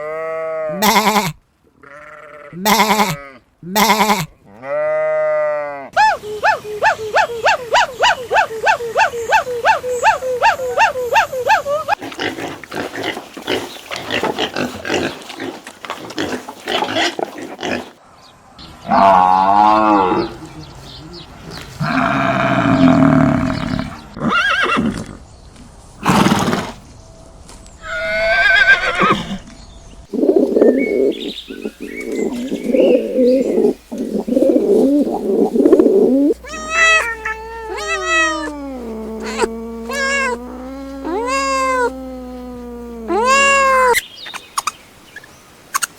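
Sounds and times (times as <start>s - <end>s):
farm animal calls: 0.0s - 18.0s, 18.8s - 24.8s, 30.2s - 44.8s
cat meowing: 36.3s - 44.0s.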